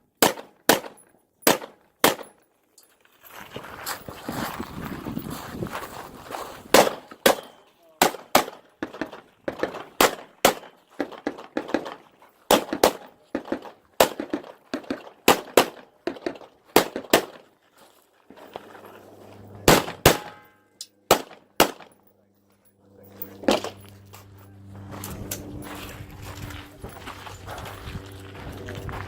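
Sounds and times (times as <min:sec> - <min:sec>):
rifle shots: 0:00.2 - 0:02.3, 0:06.7 - 0:15.9, 0:16.8 - 0:17.4, 0:19.6 - 0:22.0
low steady hum: 0:18.3 - 0:29.0.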